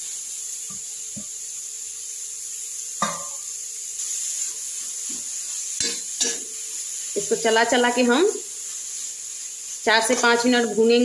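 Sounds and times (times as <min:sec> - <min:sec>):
carrots sizzling in a pan: 0:00.0 - 0:11.0
spoon knocking against pan: 0:03.0 - 0:03.4.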